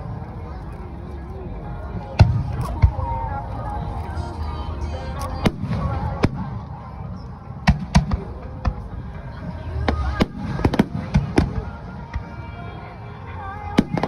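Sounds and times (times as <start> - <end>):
music playing: 0.0 - 14.0
fireworks bursting: 9.8 - 12.3.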